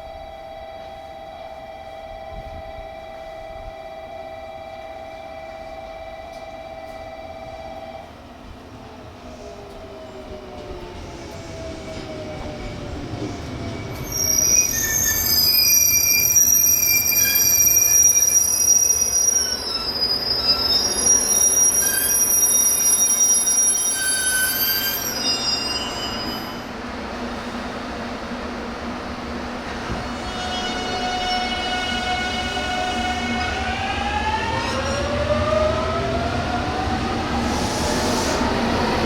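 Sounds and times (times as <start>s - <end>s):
high-pitched wheel squeal: 13.9s - 26.7s.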